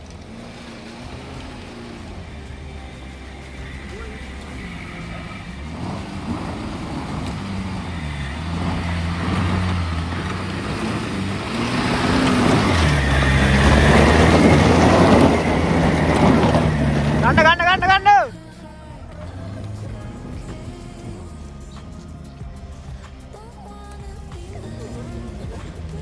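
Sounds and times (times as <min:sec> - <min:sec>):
rough tyre and track noise: 0:00.0 - 0:26.0
vehicle engine under load: 0:00.0 - 0:26.0.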